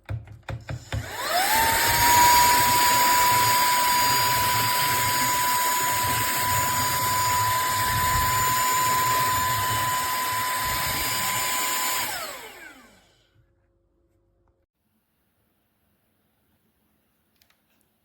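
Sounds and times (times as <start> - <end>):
handheld vacuum cleaner running: 0.6 - 13.3
vacuum motor winding down: 0.8 - 13.2.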